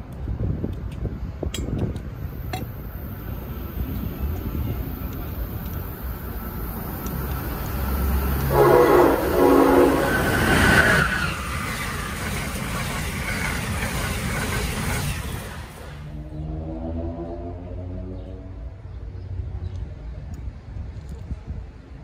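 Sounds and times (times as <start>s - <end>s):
wheels rolling on rail: 0.0s - 17.4s
train rushing past: 2.1s - 18.8s
train horn: 8.4s - 10.7s.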